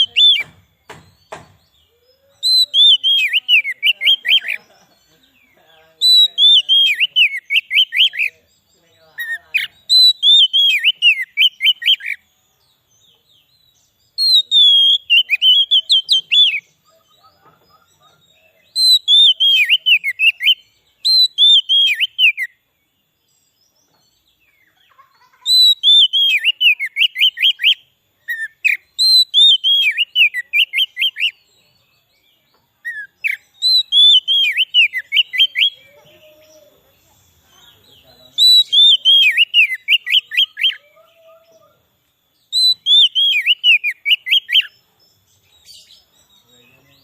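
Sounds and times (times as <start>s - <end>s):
bird singing whistled phrase: 0.0s - 4.6s, 6.0s - 8.4s, 9.2s - 12.3s, 14.2s - 17.3s, 18.2s - 22.6s, 25.5s - 31.9s, 32.8s - 36.9s, 38.3s - 41.7s, 42.4s - 44.8s.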